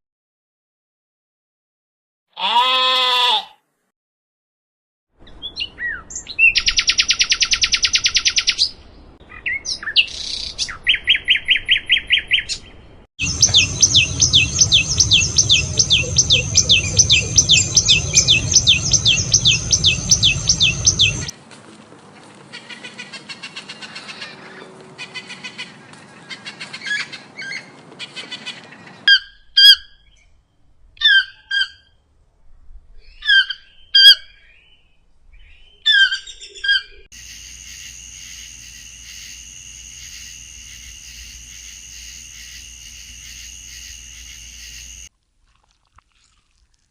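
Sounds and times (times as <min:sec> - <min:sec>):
bird chirping trills: 0:09.4 - 0:21.3.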